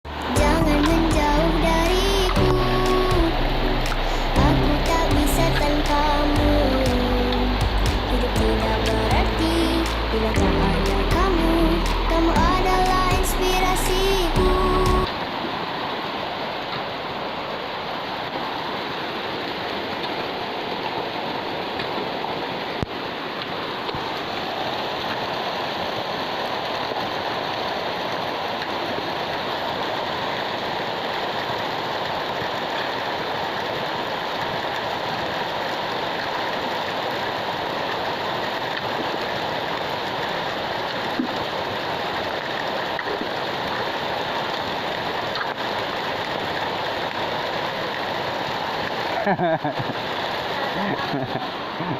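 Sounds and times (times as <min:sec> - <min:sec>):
heavy rain falling: 0:00.1 - 0:15.6.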